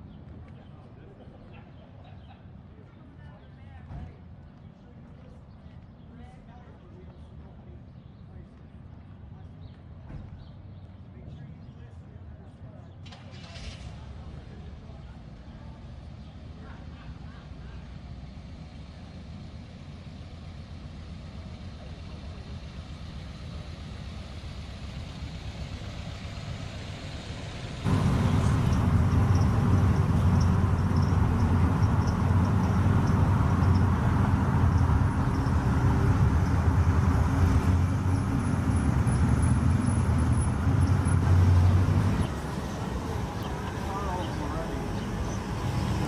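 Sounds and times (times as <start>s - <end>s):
car engine rumbling: 17.3s - 46.0s.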